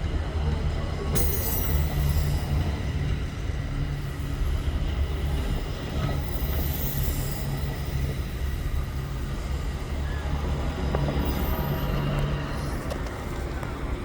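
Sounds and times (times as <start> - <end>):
train passing with engine drone: 0.0 - 14.0.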